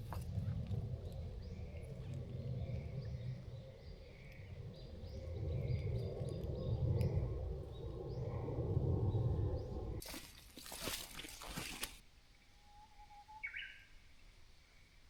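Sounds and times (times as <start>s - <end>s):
low rumble: 0.0s - 10.0s
small birds chirping: 0.0s - 10.2s, 13.1s - 14.1s.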